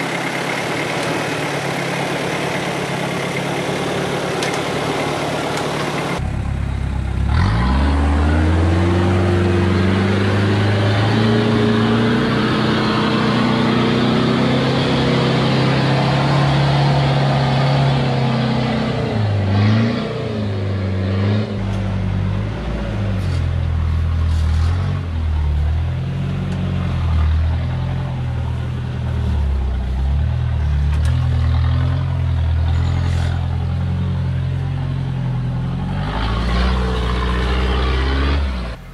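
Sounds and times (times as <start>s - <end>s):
diesel engine revving under load: 0.0s - 38.9s.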